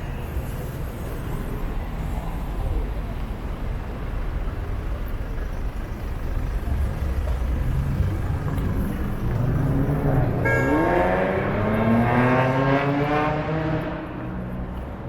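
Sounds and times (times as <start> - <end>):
street traffic rumbling: 0.0 - 15.0
vehicle engine revving: 6.9 - 14.3
short horn toot: 10.4 - 11.2.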